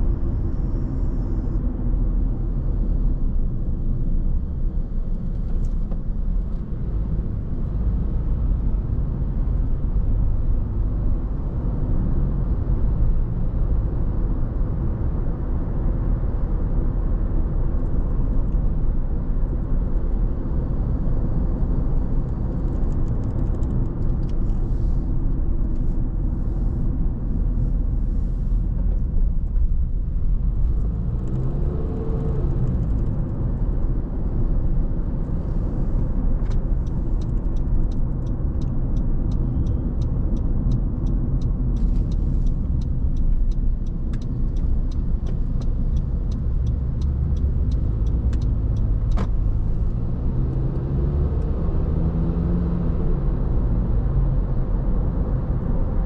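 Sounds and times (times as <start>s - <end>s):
car engine and tyres rumbling: 0.0s - 56.0s
regular ticking: 36.8s - 49.9s.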